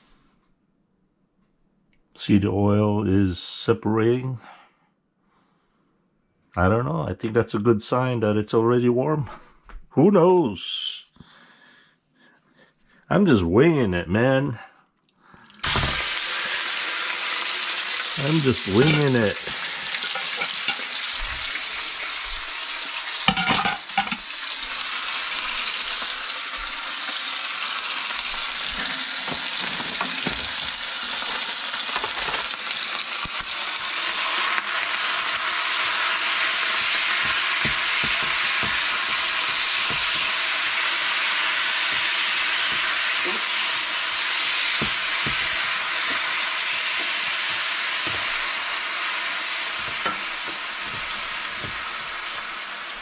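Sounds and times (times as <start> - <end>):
beef sizzling in hot oil: 15.5 - 53.0.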